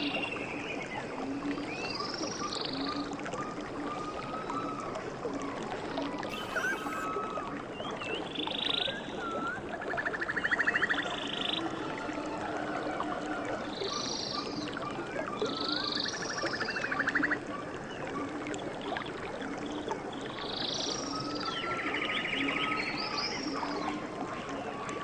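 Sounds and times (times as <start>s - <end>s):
birds swooping calls and trills: 6.3s - 7.1s
low repeated bird call: 6.3s - 7.2s.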